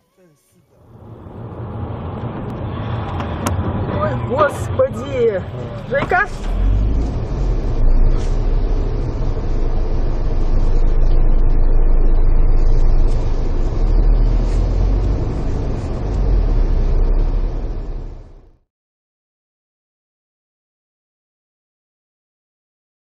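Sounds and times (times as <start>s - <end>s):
moving car rumble: 0.7s - 18.7s.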